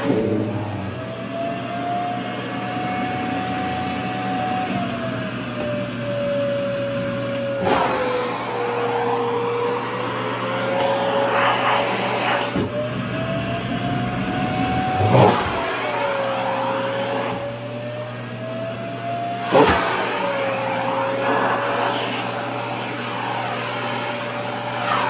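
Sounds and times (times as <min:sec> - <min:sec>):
vacuum cleaner motor: 0:00.0 - 0:25.0
rushes of air: 0:11.4 - 0:17.2.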